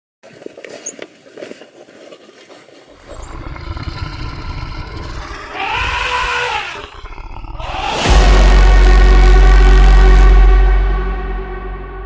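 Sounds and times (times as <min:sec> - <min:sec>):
animal drawn-out cry: 0:03.0 - 0:08.1
low rumble: 0:03.2 - 0:12.0.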